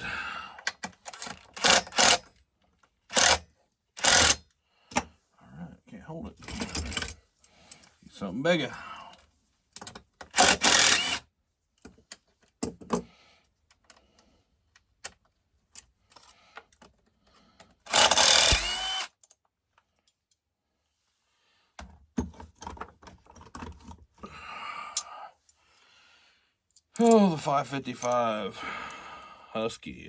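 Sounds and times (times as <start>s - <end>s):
power tool bursts: 3.1s - 3.4s, 4.0s - 4.4s, 10.3s - 11.2s, 17.9s - 19.1s.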